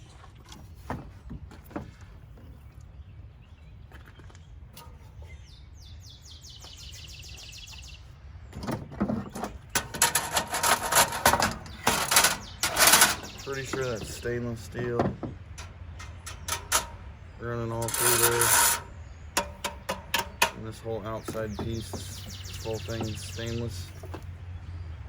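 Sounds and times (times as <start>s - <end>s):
metal clattering and knocking: 8.5s - 24.3s.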